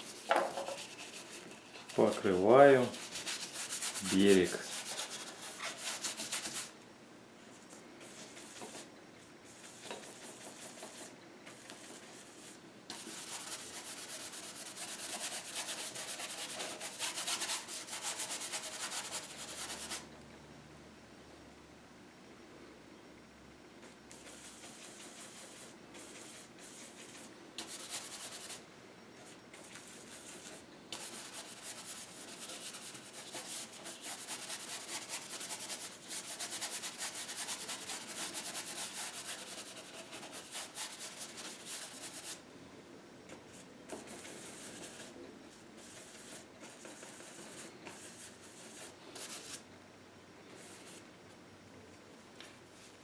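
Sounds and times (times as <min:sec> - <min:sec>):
paintbrush rubbing on canvas: 0:02.8 - 0:06.7, 0:29.6 - 0:42.4.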